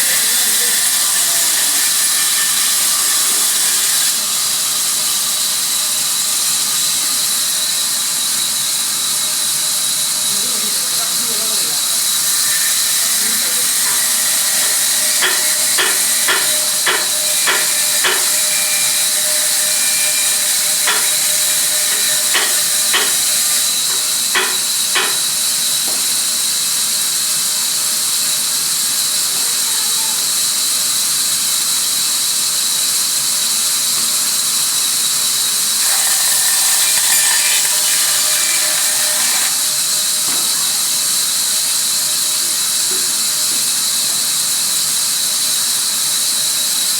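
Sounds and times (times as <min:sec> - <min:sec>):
sawmill machinery hissing: 0:00.0 - 0:46.9
sharp knocks: 0:14.6 - 0:25.2.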